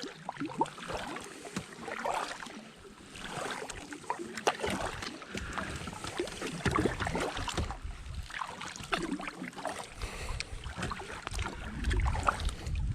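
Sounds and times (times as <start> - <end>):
water splashing: 0.0 - 12.9
wind rumble on microphone: 6.7 - 9.1, 10.0 - 12.9.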